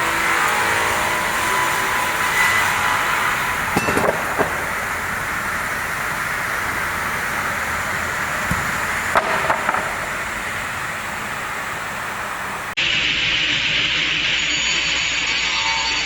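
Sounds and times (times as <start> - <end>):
rip saw machinery running: 0.0 - 16.0
sharp knocks: 8.4 - 10.2.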